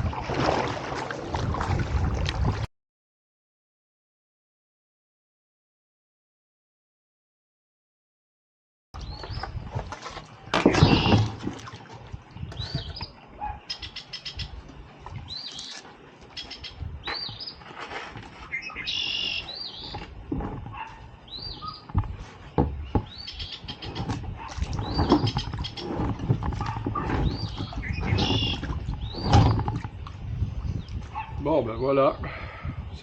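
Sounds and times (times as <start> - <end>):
birds chirping: 9.0 - 11.3, 12.2 - 33.0.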